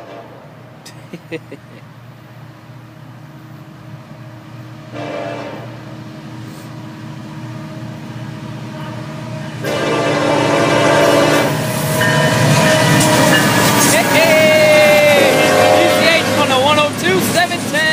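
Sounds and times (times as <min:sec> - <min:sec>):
locomotive air horn blasts: 0:00.0 - 0:00.4, 0:04.9 - 0:05.8, 0:09.6 - 0:11.7, 0:15.1 - 0:16.6
train low rumble: 0:00.0 - 0:17.9.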